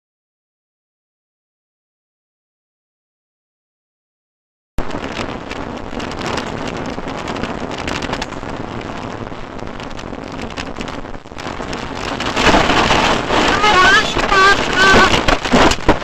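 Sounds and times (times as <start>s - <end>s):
crackle of small ticks: 4.8s - 13.4s, 14.2s - 16.0s
car road and wind noise: 4.8s - 16.0s.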